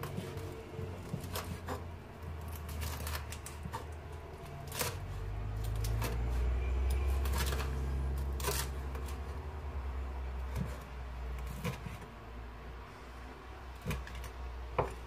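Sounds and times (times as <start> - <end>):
knife chopping on wooden board: 1.0 - 1.9, 13.8 - 15.0.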